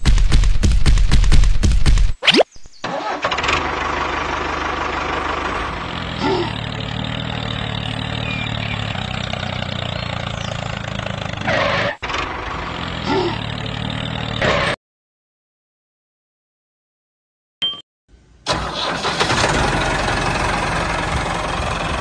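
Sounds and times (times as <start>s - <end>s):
tractor engine running: 2.8s - 14.4s, 18.5s - 22.0s.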